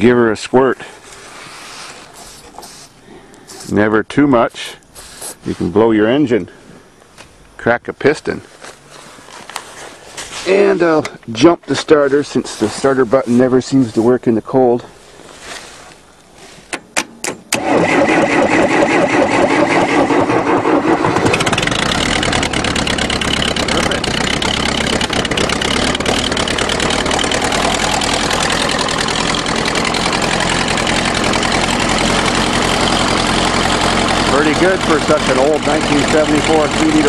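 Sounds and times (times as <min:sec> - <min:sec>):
diesel tractor engine running: 0:17.5 - 0:37.0
starter motor cranking: 0:17.5 - 0:37.0.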